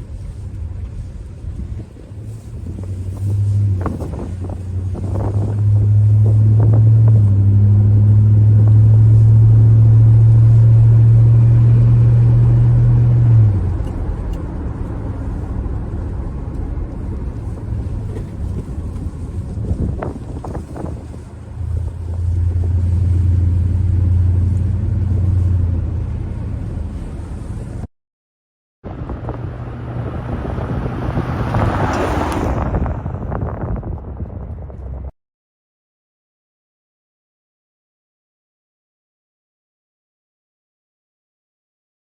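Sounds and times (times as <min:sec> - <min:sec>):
pickup truck engine running: 0:00.0 - 0:27.9.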